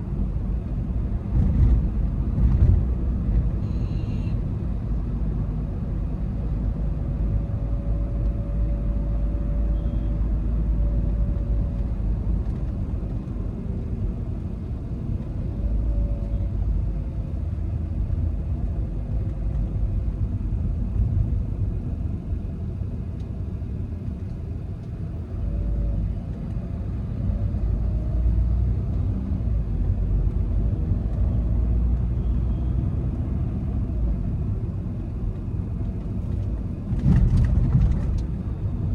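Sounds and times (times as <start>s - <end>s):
road and engine rumble: 0.0s - 38.9s.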